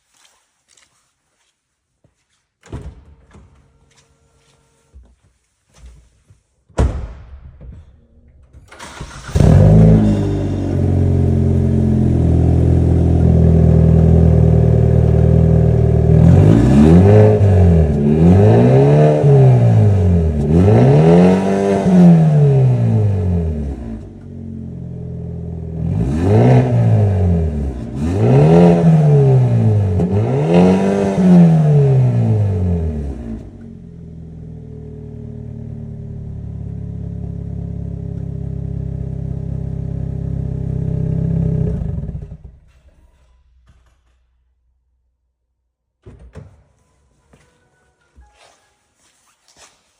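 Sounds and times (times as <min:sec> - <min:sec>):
car engine idling: 0:08.8 - 0:16.5, 0:32.8 - 0:42.7
car engine revving: 0:08.8 - 0:42.5.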